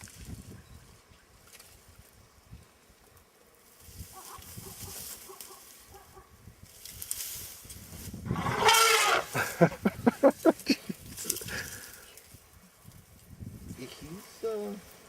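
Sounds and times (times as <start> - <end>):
elephant trumpeting: 8.3 - 9.5
elephant pulsed calls: 8.4 - 9.4.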